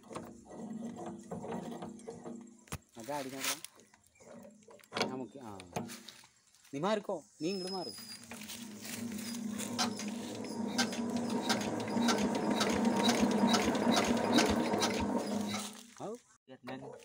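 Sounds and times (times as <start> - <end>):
diesel engine cranking: 7.6 - 16.0
repeated clicking: 9.7 - 15.1.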